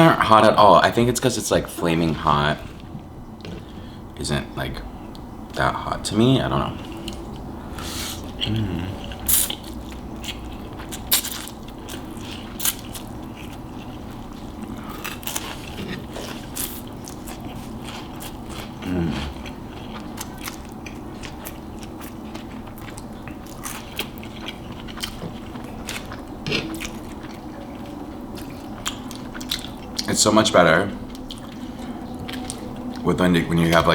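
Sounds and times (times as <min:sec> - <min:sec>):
crunchy snack chewing: 0:07.0 - 0:30.1.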